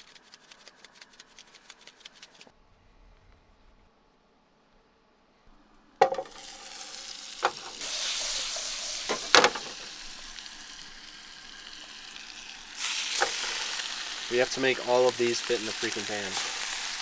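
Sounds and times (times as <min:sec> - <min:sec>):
utensil knocking against pan: 0:06.0 - 0:06.6, 0:07.4 - 0:07.8, 0:09.1 - 0:09.9
fish sizzling in a pan: 0:06.0 - 0:17.0.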